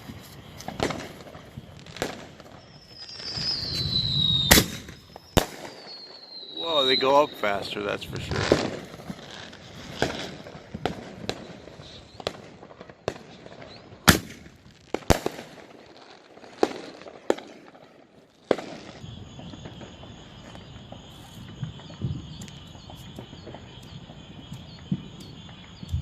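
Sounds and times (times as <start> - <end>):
firework mortar bangs: 0.0 - 25.9
high insect chirring: 2.6 - 8.4, 19.0 - 26.0.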